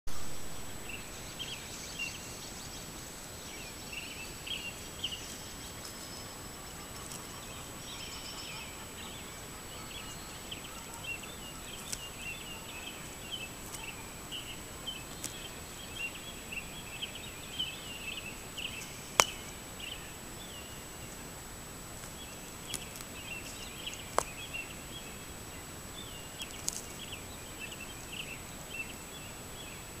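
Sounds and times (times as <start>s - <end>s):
steady hiss: 0.1s - 30.0s
birds chirping: 0.2s - 30.0s.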